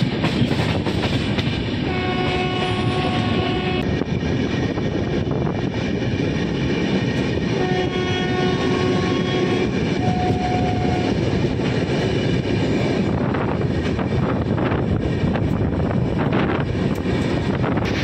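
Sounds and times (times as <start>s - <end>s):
train running at speed: 0.0s - 18.0s
wind gusts on microphone: 0.0s - 18.0s
faint locomotive horn: 1.8s - 3.9s, 7.6s - 11.2s.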